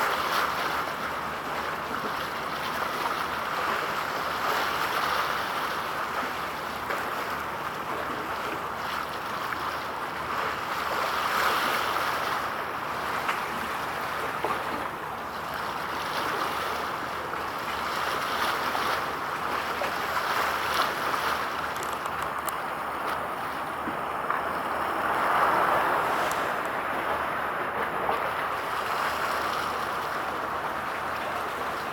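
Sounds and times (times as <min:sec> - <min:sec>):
sea rushing: 0:00.0 - 0:31.9
wind: 0:00.0 - 0:31.9.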